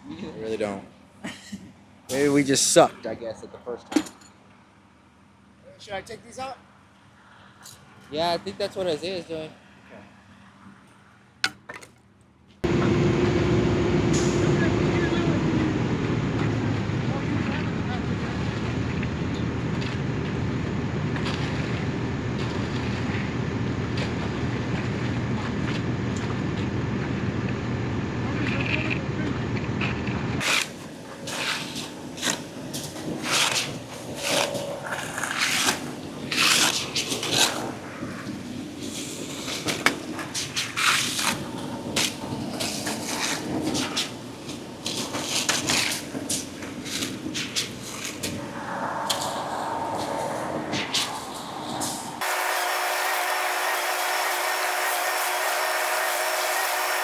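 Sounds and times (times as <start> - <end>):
heavy engine rumbling: 12.7 - 25.3.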